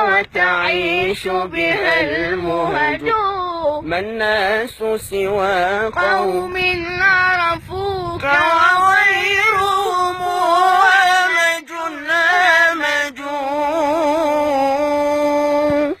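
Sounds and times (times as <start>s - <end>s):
children singing devotional song: 0.0s - 3.4s.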